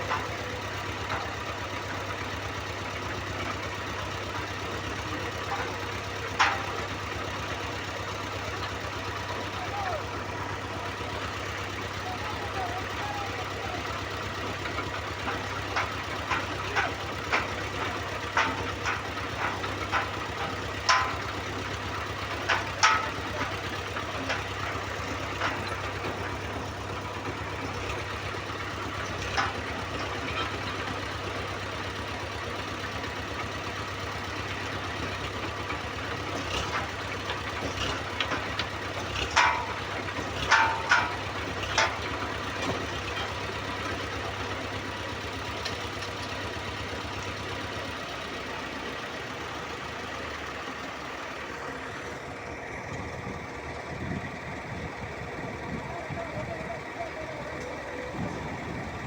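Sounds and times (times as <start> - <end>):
heavy machine engine running: 0.0 - 59.0
sharp metallic clanks: 5.4 - 7.0, 14.6 - 31.0, 36.4 - 44.0.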